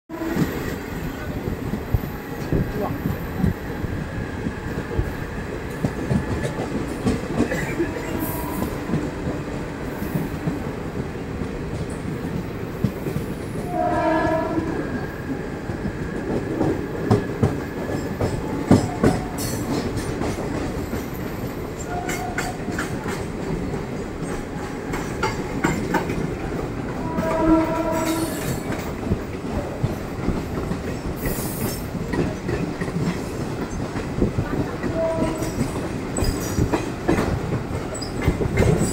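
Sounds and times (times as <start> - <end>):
multi-tone train horn: 0.1 - 1.0, 7.4 - 9.6, 13.6 - 15.6, 21.8 - 22.8, 26.8 - 28.7, 34.6 - 35.9
train wheels rumbling and clattering: 0.1 - 38.9.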